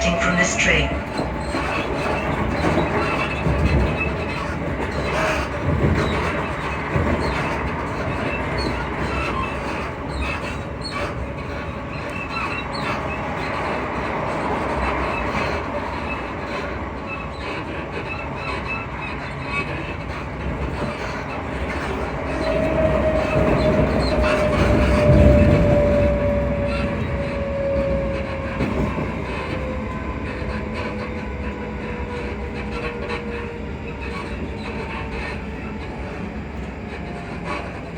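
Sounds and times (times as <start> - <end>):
train wheels rumbling on track: 0.0 - 37.9.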